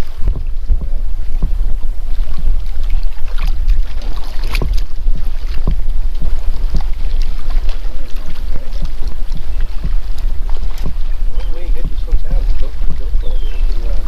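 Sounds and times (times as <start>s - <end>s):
wind buffeting microphone: 0.0s - 14.0s
knocks and taps: 0.2s - 2.5s.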